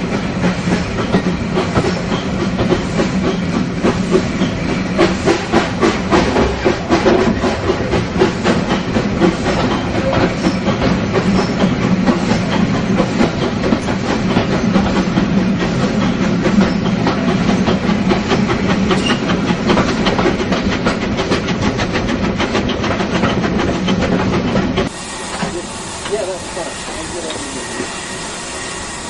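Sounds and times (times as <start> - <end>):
train low rumble: 0.0 - 29.0
train wheels clattering: 0.0 - 29.0.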